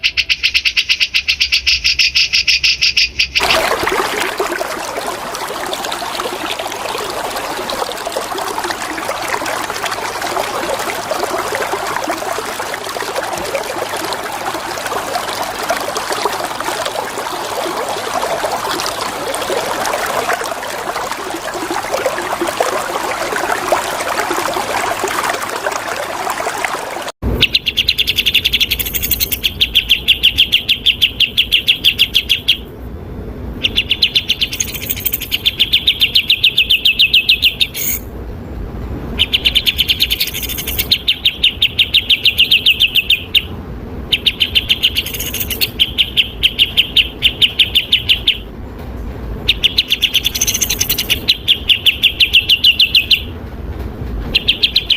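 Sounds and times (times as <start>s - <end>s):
flowing water: 3.4s - 27.2s, 28.4s - 29.5s, 33.6s - 38.0s, 39.1s - 43.5s, 44.1s - 48.4s, 49.4s - 53.3s.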